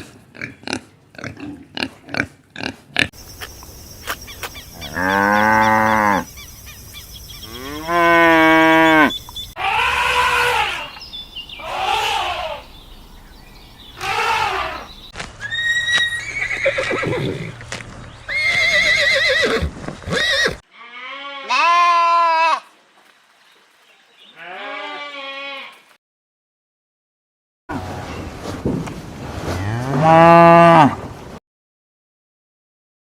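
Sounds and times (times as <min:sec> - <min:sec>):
farm animal calls: 0:02.6 - 0:17.6.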